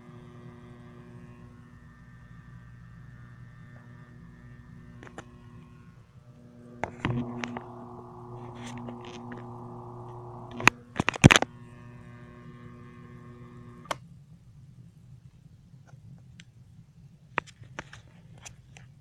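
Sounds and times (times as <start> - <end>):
buzzing vibration: 0.0 - 14.0
fan motor humming: 0.0 - 14.0
click: 5.0 - 5.4, 6.8 - 12.2, 13.0 - 14.0.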